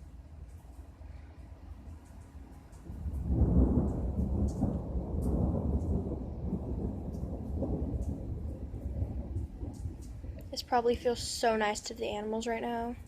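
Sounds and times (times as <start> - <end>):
rolling thunder: 2.7 - 11.4.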